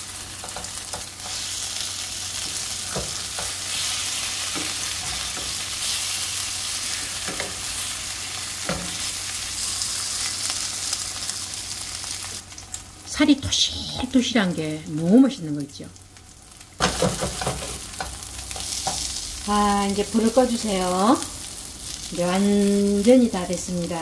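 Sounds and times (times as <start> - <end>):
fish sizzling in oil: 0.0 - 24.0
spatula knocking on pan: 16.8 - 18.2.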